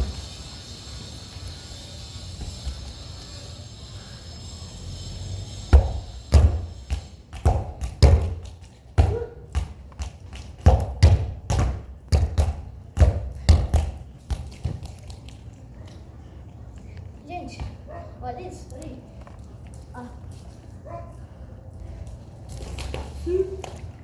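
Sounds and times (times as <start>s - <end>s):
football kicked and bouncing: 5.7s - 15.0s.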